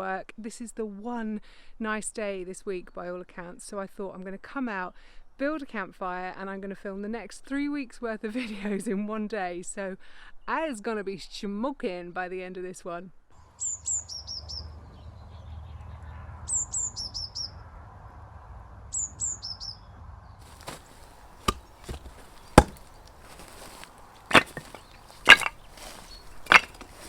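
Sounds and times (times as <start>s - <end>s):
wood chopping knocks: 20.5s - 27.0s.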